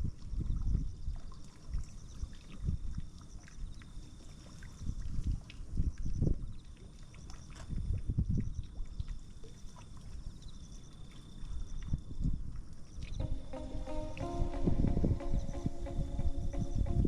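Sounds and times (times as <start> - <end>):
wind buffeting microphone: 0.0 - 1.9, 4.8 - 6.6, 7.6 - 8.8, 11.9 - 17.0.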